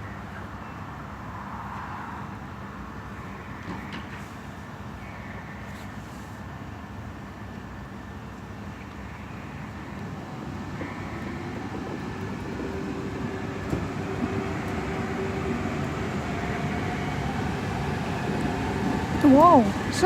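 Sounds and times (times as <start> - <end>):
electric train running: 8.0 - 20.0
traction motor hum: 9.1 - 20.0.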